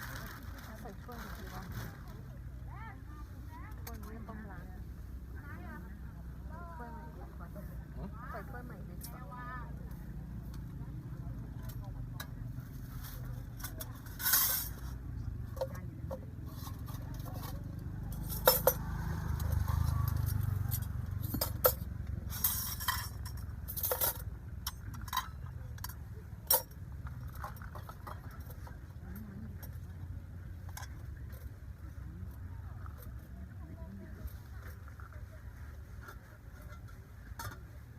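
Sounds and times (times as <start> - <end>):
dishes and utensils clinking: 18.2 - 28.8.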